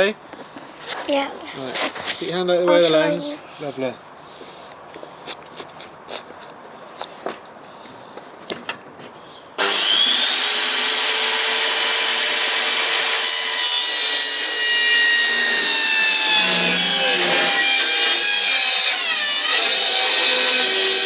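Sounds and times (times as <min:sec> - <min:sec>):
power saw cutting wood: 0:09.6 - 0:21.0.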